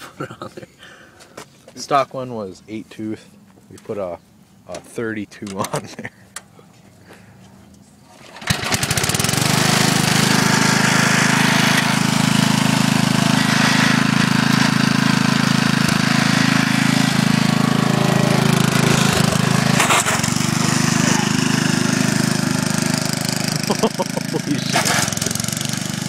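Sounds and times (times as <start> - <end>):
lawn tractor engine running: 8.1 - 26.0.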